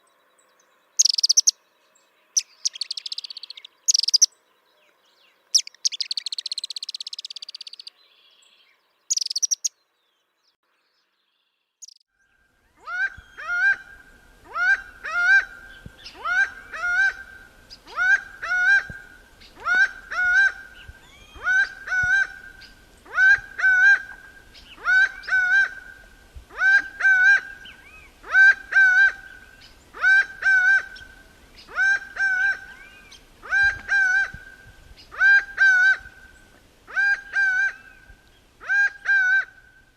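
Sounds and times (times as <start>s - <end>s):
bird chirping: 0.0s - 13.5s
bird calling repeatedly: 1.0s - 1.6s, 2.4s - 4.3s, 5.5s - 7.9s, 9.1s - 9.8s, 11.8s - 12.0s.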